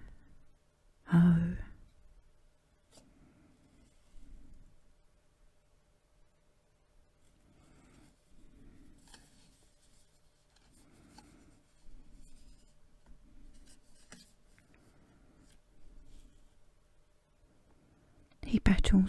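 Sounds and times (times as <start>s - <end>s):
book pages rustling: 7.3s - 14.9s.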